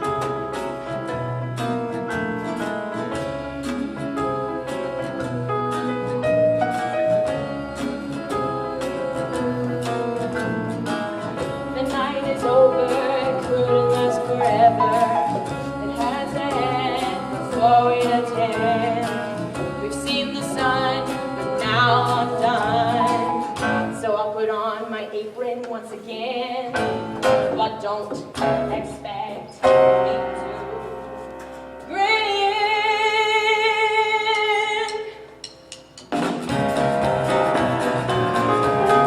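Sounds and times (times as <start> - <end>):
piano accompaniment: 0.0 - 24.7, 26.7 - 33.6, 35.3 - 39.0
person singing with vibrato: 3.3 - 31.2.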